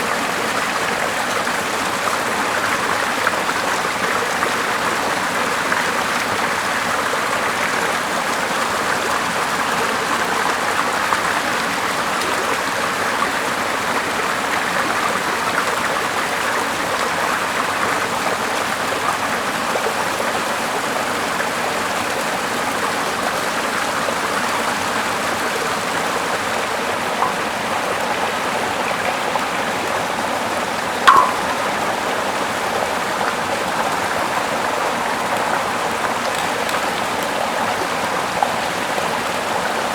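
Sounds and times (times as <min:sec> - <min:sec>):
river water flowing: 0:00.0 - 0:39.9
short sharp pop: 0:31.1 - 0:31.7.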